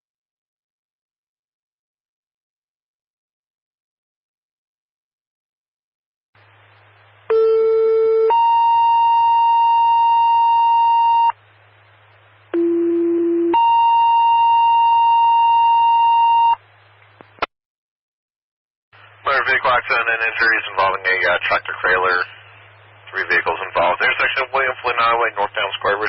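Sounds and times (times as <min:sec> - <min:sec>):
radio hiss: 0:19.0 - 0:26.0.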